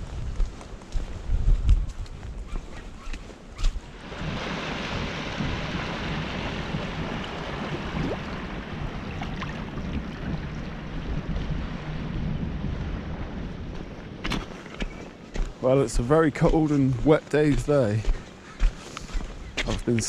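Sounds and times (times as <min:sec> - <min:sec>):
wind buffeting microphone: 0:00.0 - 0:20.0
sea waves breaking on shore: 0:03.7 - 0:15.7.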